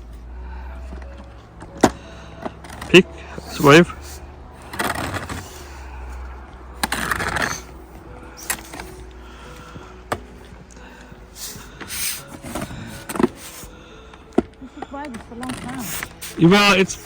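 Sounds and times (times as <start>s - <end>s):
roof rake scraping snow: 6.8s - 7.7s, 11.4s - 13.7s, 15.4s - 17.0s.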